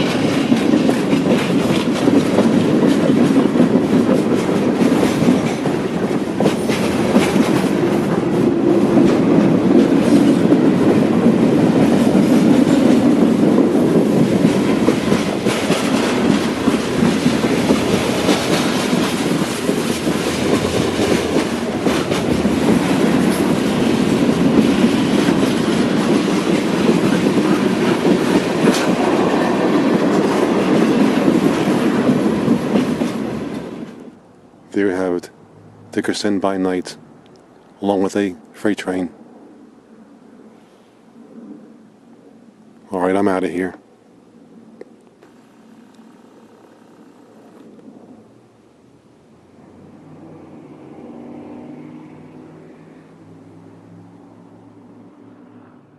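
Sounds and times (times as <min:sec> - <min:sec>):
wheels clicking over rail joints: 0:00.0 - 0:34.2
train wheels rumbling on rail: 0:00.0 - 0:36.9.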